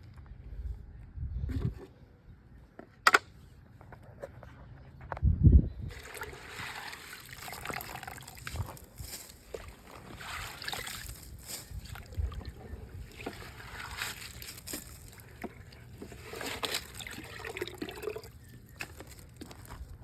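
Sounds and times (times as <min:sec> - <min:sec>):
pool water splashing: 0:05.9 - 0:19.0.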